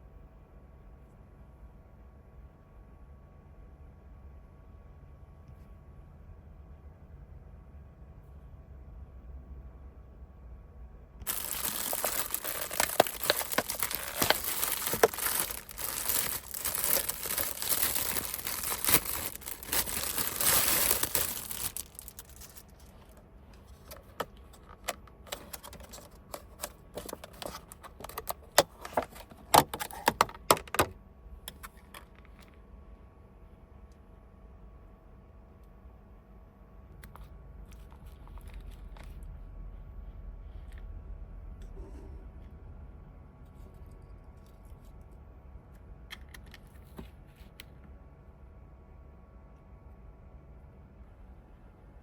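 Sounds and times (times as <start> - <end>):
crinkling and rustling: 11.2 - 30.9, 37.0 - 39.4.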